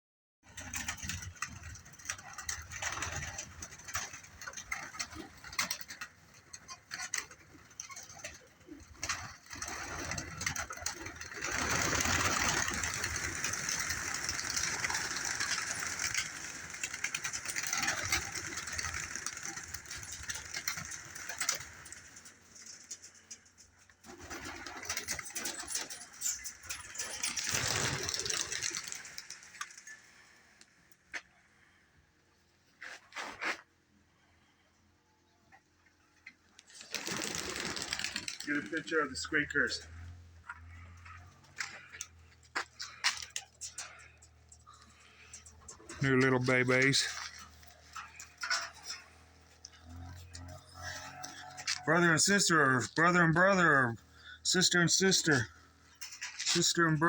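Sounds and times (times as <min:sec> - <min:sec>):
pigeons cooing: 0:01.1 - 0:22.1.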